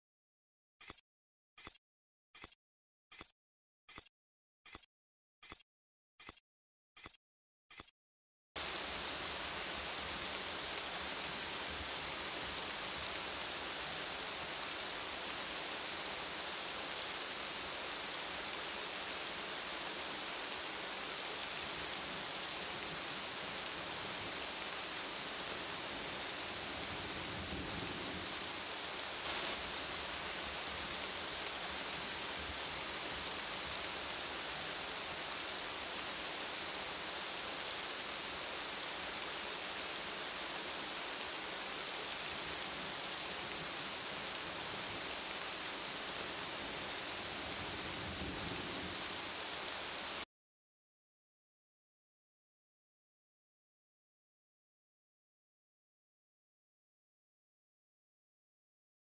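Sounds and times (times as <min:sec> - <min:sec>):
rain falling on trees: 0:08.6 - 0:50.2.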